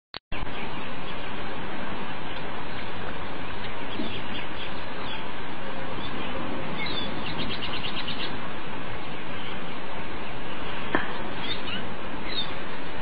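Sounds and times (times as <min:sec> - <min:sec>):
steady rushing hiss: 0:00.3 - 0:13.0
small bird chirping: 0:06.0 - 0:08.4, 0:11.4 - 0:12.6.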